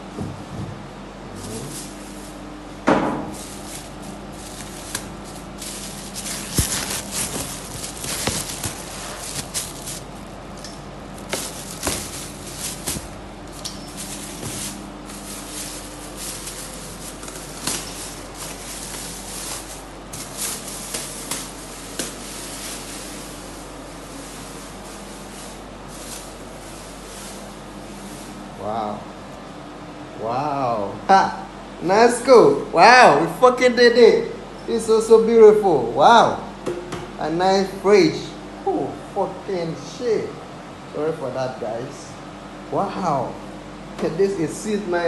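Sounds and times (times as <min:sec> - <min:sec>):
packaging rustling and crackling: 0:03.3 - 0:28.4.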